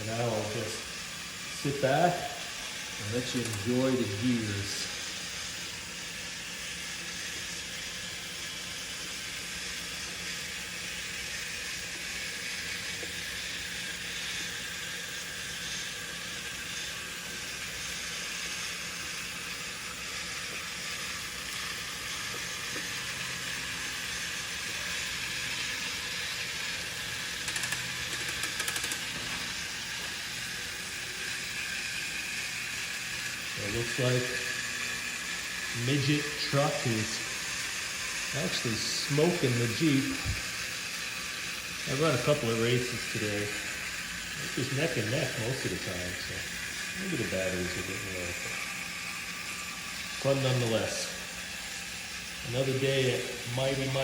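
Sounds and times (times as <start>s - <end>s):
toy motors whirring: 0.0s - 54.0s.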